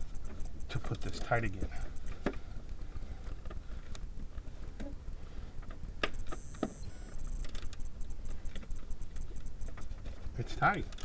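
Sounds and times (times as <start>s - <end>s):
ratchet clicking: 6.0s - 9.9s.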